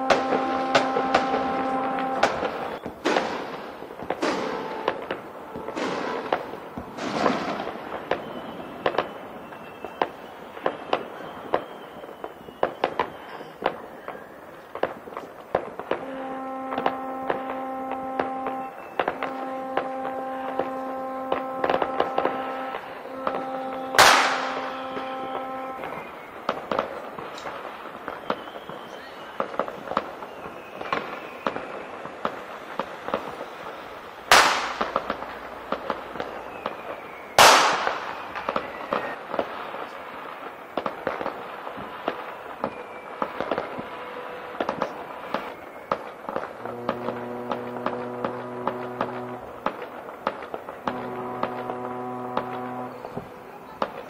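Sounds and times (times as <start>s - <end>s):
ship horns blasting: 0.0s - 2.8s, 4.3s - 6.3s, 15.9s - 26.1s, 46.6s - 54.0s
fireworks crackling pops: 0.0s - 54.0s
fireworks echoing bangs: 0.0s - 54.0s.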